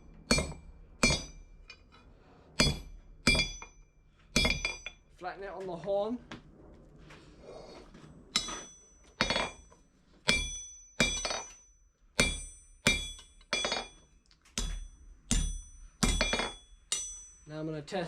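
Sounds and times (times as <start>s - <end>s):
hammer striking on anvil: 0.0s - 1.8s, 2.6s - 5.0s, 8.4s - 9.7s, 10.3s - 17.5s.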